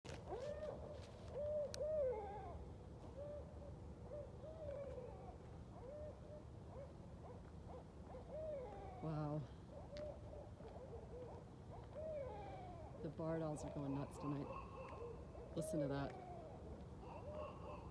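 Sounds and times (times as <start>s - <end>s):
owls hooting: 1.4s - 2.6s, 8.1s - 17.9s.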